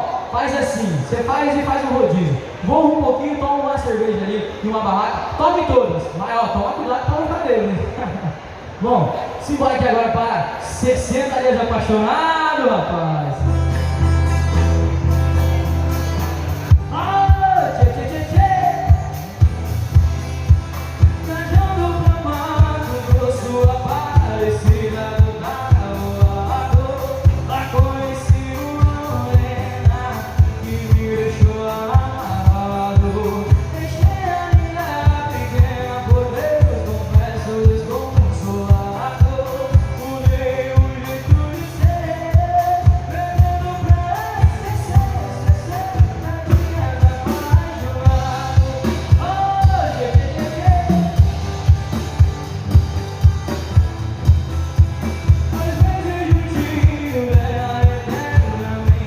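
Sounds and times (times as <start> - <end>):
band playing: 10.6 - 59.0
man singing: 16.2 - 19.5, 21.0 - 53.5, 54.8 - 59.0.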